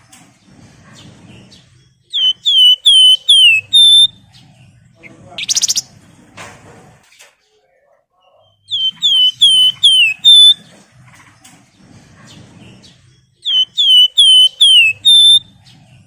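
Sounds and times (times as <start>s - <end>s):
bird whistling notes: 2.1s - 4.2s, 5.4s - 5.9s, 8.7s - 10.6s, 13.4s - 15.5s.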